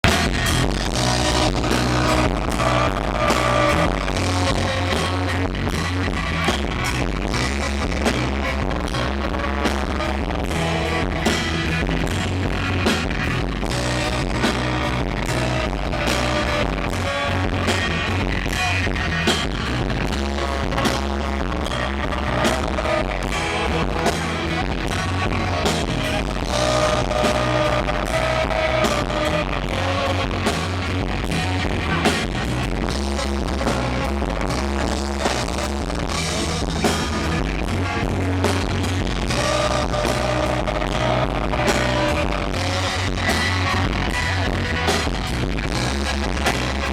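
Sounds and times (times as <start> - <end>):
rock band playing: 0.0 - 46.9
person singing: 20.2 - 32.2, 37.8 - 44.6.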